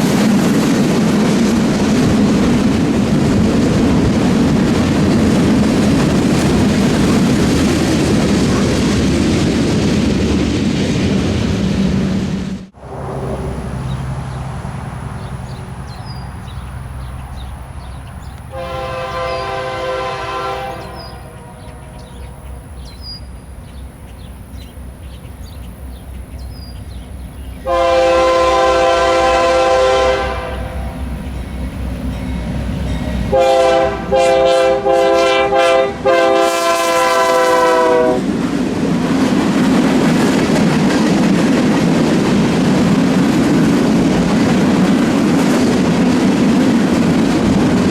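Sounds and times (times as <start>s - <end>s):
locomotive low rumble: 0.0s - 34.8s
train wheels roaring on rails: 0.0s - 47.9s
locomotive air horn blasts: 18.5s - 22.3s, 27.7s - 31.0s, 33.3s - 38.3s.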